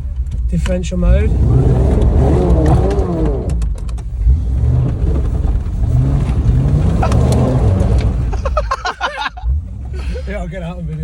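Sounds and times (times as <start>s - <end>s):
engine revving: 1.1s - 8.6s.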